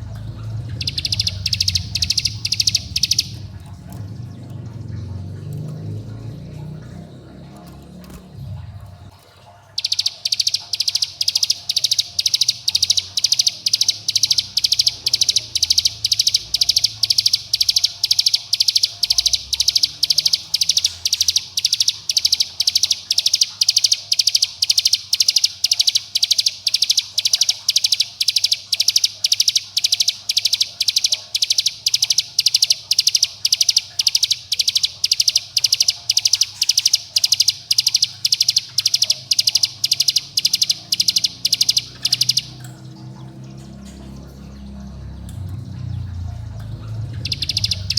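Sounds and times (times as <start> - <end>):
bird call of sharp high notes: 0.7 - 3.4, 47.2 - 47.9.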